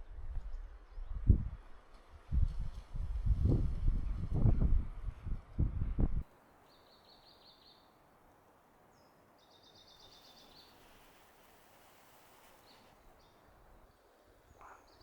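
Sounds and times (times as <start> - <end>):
quiet forest ambience: 6.2 - 15.0.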